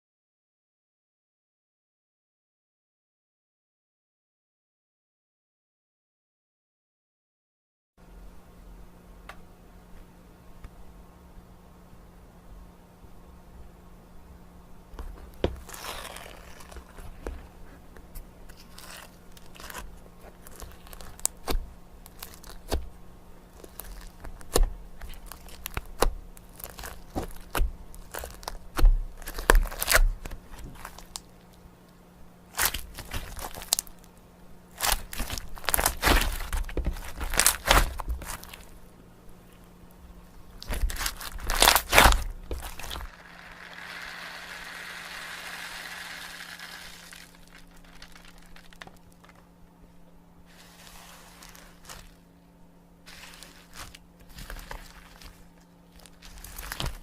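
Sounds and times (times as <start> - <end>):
crinkling and tearing: 15.0 - 22.9, 23.5 - 31.6, 32.5 - 34.1, 34.7 - 38.8, 40.3 - 49.5, 50.5 - 52.2, 53.1 - 57.0.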